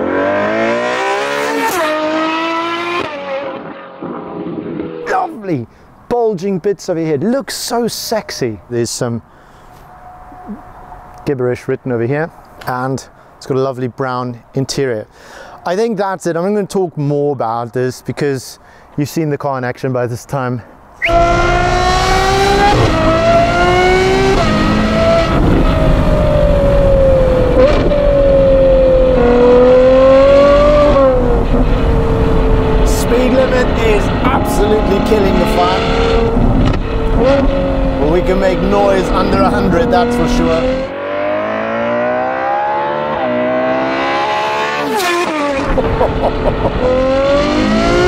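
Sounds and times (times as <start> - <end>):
sports car engine accelerating: 0.0 - 5.1, 21.0 - 48.0
gear upshifts: 21.0 - 48.0
exhaust crack on upshift: 32.9 - 38.0, 44.8 - 48.0.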